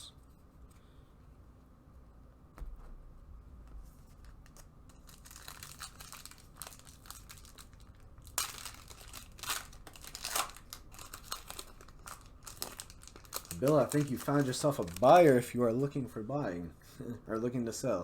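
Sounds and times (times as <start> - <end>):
foil wrapper crinkling and tearing: 4.4 - 15.5.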